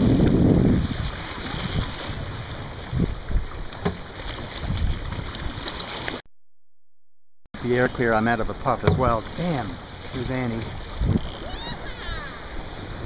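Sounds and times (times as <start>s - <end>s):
wind buffeting microphone: 0.0s - 3.7s, 4.4s - 5.7s, 7.6s - 13.0s
water along a boat: 0.0s - 6.3s, 7.6s - 13.0s
short knocks: 8.8s - 9.2s.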